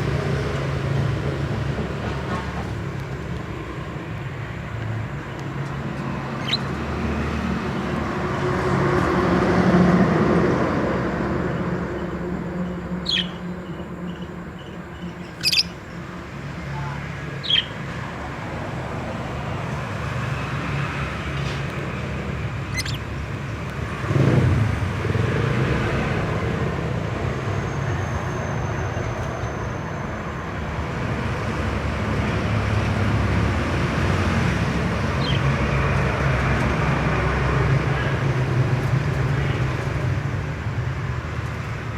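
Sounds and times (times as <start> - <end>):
low traffic rumble: 0.0 - 41.9.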